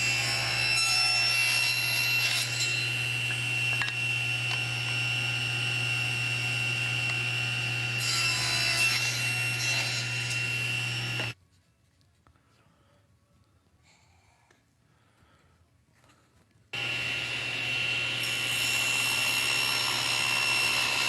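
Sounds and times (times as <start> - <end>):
power saw cutting wood: 0.0 - 11.4, 16.8 - 21.0.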